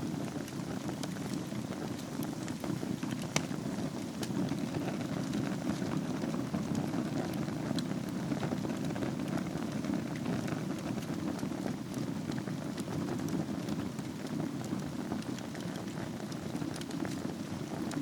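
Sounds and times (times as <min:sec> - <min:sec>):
fire crackling and popping: 0:00.0 - 0:18.0
low rumble of flames: 0:00.0 - 0:18.0.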